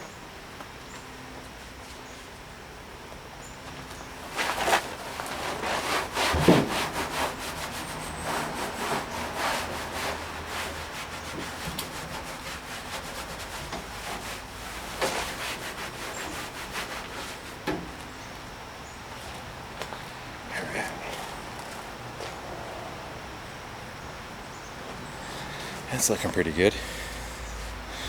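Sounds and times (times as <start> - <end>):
hand rubbing on steel: 4.3 - 17.6.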